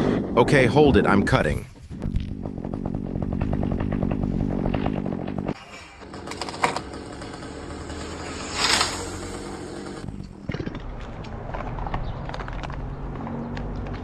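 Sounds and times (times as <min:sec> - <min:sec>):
chainsaw cutting wood: 0:02.1 - 0:10.2
short rushing noise: 0:08.2 - 0:09.3.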